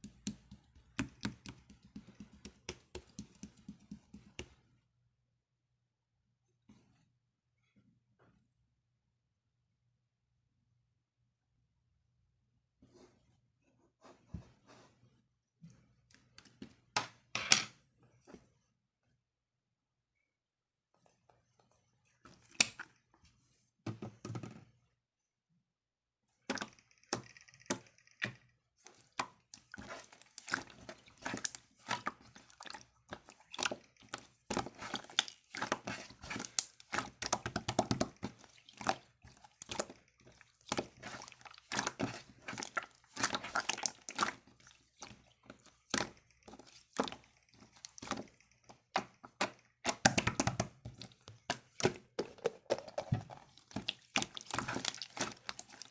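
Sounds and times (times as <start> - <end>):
slime squishing: 26.5 - 55.9
air bubbles popping: 52.2 - 55.2.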